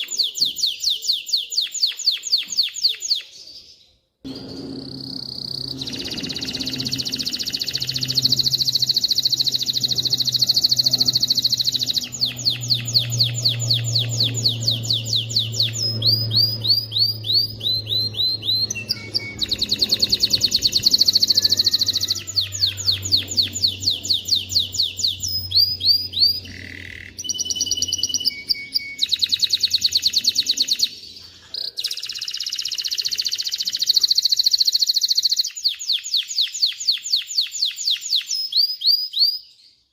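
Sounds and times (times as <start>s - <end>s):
canary singing trills: 0.0s - 39.8s
low steady hum: 4.3s - 31.3s.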